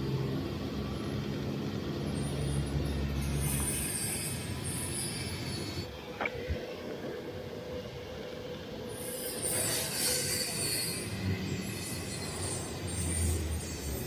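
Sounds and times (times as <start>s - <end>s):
metal grinding screech: 9.0s - 14.0s.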